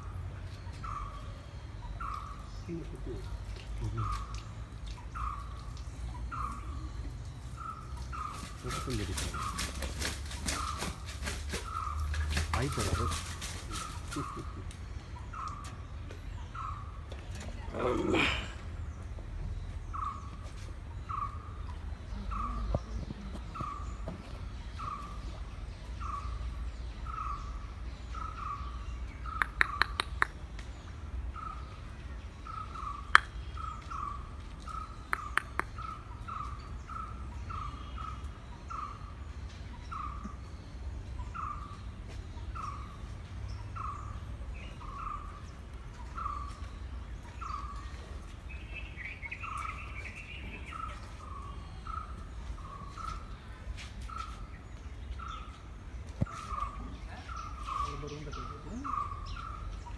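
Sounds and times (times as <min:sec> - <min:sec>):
bird chattering: 0:29.2 - 0:30.4, 0:32.5 - 0:36.5
sharp clicks: 0:29.4 - 0:30.7.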